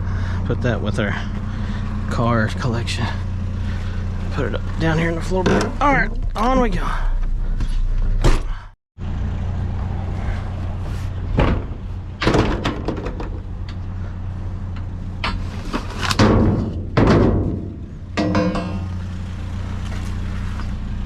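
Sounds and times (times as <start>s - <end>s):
vehicle running from inside cab: 0.0s - 12.4s, 13.2s - 21.0s
thumps and knocks: 11.3s - 13.5s, 16.2s - 19.0s.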